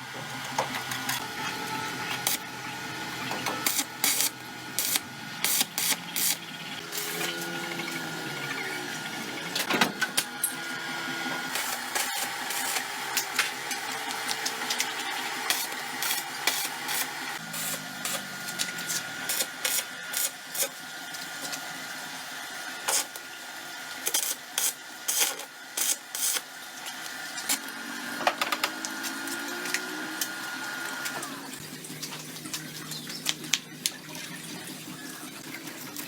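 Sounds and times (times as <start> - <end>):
small motor whining: 0.0 - 21.3, 25.1 - 31.6.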